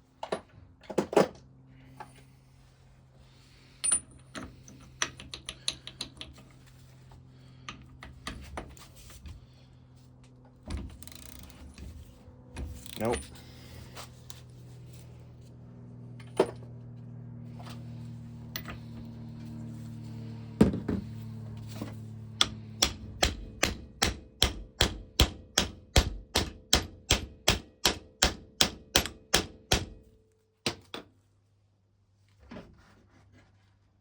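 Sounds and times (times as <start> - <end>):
steady low hum: 0.0 - 30.3
hammer tapping on metal: 22.4 - 30.0.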